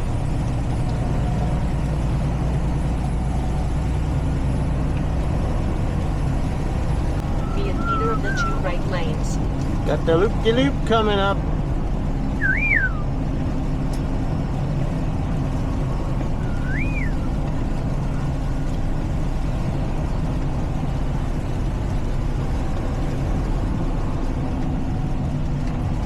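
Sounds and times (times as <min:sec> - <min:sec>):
road noise: 0:00.0 - 0:26.0
truck engine drone: 0:00.0 - 0:26.0
short high chirp: 0:12.4 - 0:13.0.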